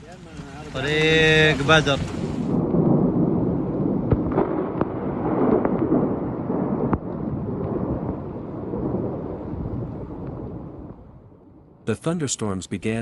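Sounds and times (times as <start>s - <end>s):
hailstones ticking: 0.0s - 11.0s
low rumbling roar of hailstorm: 0.0s - 11.9s.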